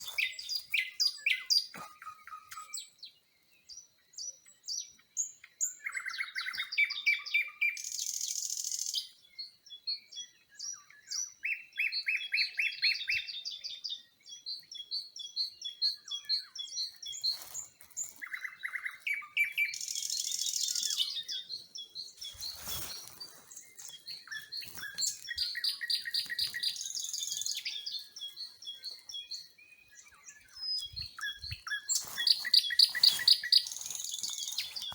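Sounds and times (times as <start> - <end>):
songbirds singing: 0.0 - 34.9.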